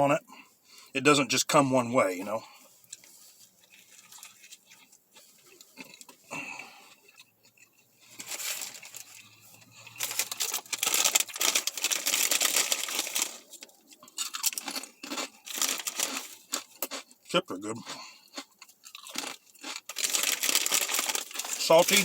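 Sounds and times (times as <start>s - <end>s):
chip bag crinkling: 3.6s - 6.1s, 8.0s - 17.2s, 17.8s - 22.0s.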